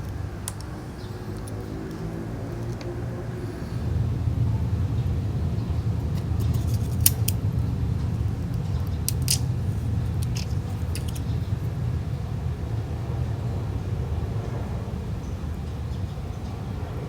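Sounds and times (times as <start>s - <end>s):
low hum: 0.8s - 16.2s
hand tools clicking on phone: 10.2s - 11.2s.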